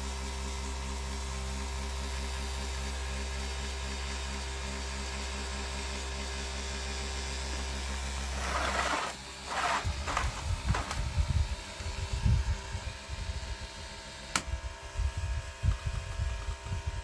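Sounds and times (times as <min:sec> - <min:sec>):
small electric motor humming: 0:08.0 - 0:17.0
handling noise: 0:08.3 - 0:11.3.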